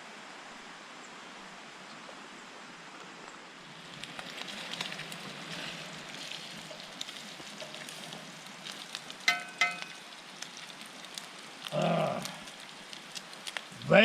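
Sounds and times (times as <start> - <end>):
bacon sizzling in a pan: 3.8 - 14.0
sharp metallic clinks: 9.3 - 9.9.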